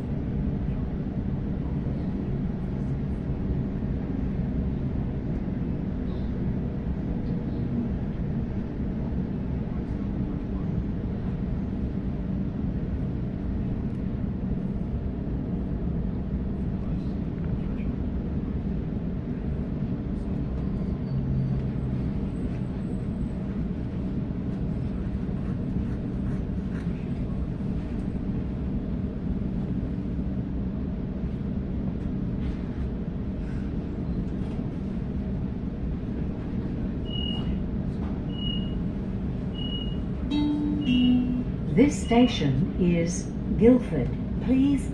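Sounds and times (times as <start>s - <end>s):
electric train rumbling: 0.0s - 44.9s
short high beeps: 39.6s - 41.6s.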